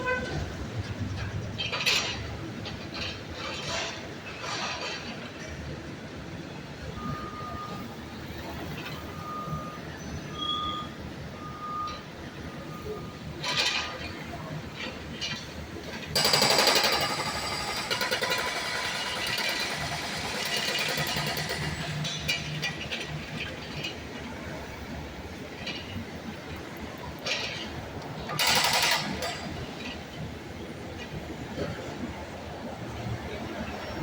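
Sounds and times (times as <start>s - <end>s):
engine and traffic rumble: 0.0s - 34.0s
jackhammer rattling: 16.1s - 22.9s, 28.3s - 30.0s.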